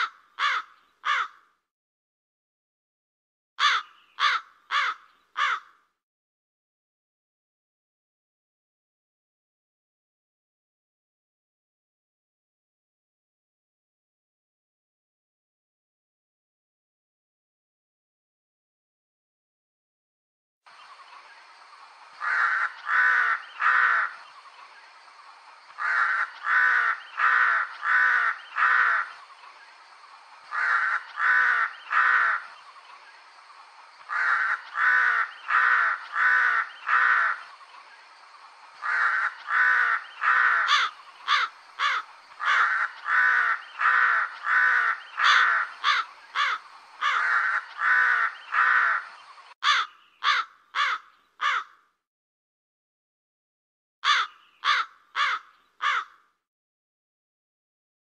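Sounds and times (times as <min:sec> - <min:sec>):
crow cawing: 0:00.0 - 0:01.6, 0:03.6 - 0:05.9, 0:22.2 - 0:24.2, 0:25.7 - 0:29.2, 0:30.5 - 0:32.6, 0:34.1 - 0:37.5, 0:38.8 - 0:51.9, 0:54.0 - 0:56.4.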